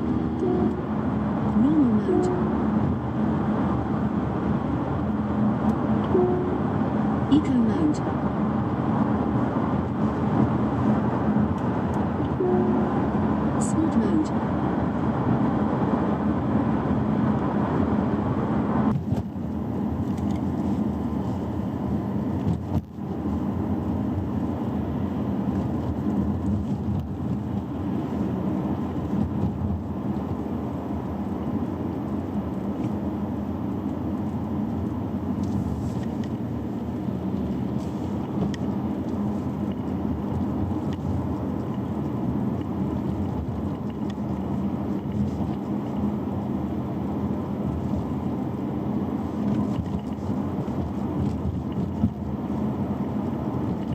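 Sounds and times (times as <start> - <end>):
low hum: 0.0 - 15.1
car road and running noise: 0.0 - 53.9.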